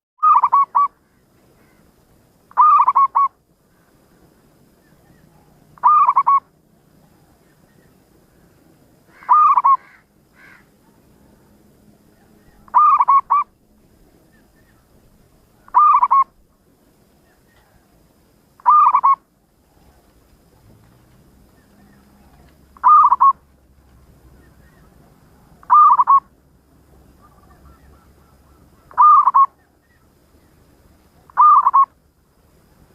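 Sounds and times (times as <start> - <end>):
dove cooing: 0.2 - 1.8, 2.5 - 3.4, 5.0 - 7.4, 9.1 - 11.5, 12.2 - 13.5, 15.6 - 16.4, 18.6 - 20.2, 21.4 - 23.5, 24.4 - 26.4, 27.1 - 30.1, 31.2 - 32.0.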